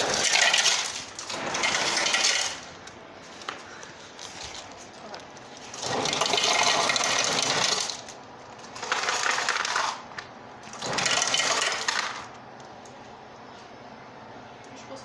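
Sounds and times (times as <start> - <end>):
soda fountain dispensing into cup: 5.7 - 8.0, 10.7 - 12.2.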